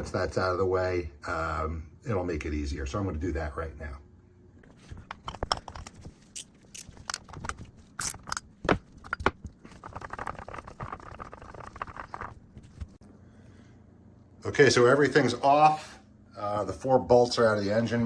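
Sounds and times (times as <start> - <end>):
metal scraping and rubbing: 4.7 - 13.0.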